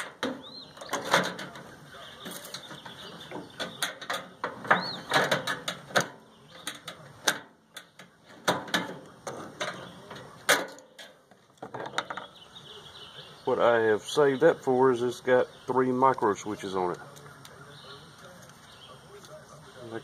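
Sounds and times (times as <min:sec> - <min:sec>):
metal and plastic parts clattering: 0:00.0 - 0:12.3.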